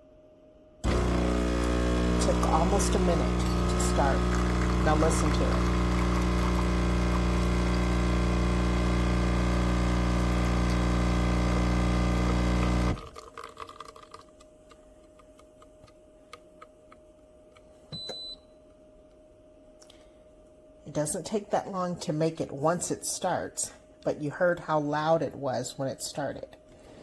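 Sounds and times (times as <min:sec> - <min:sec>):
espresso pump humming: 0:00.8 - 0:13.7
short beep: 0:17.9 - 0:18.5.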